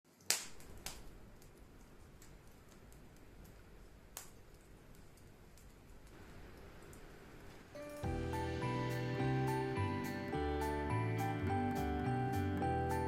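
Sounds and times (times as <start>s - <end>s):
wood fire crackling: 0.1s - 13.0s
sharp pops: 0.2s - 1.2s.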